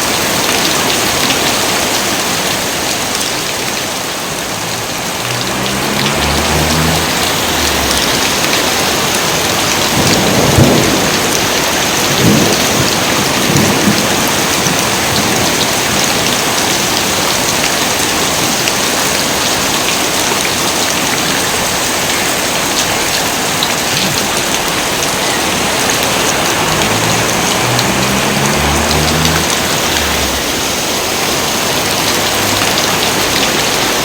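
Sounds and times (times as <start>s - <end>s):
heavy rain pouring: 0.0s - 34.0s
low thunder rumbles: 4.7s - 16.0s.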